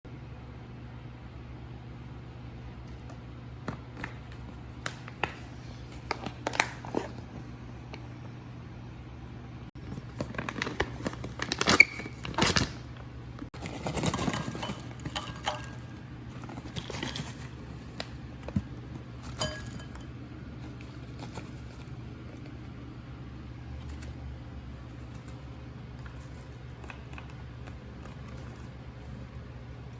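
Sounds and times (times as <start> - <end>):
snack bag crinkling: 4.0 - 7.6, 9.8 - 19.5, 20.6 - 22.6, 24.8 - 29.2.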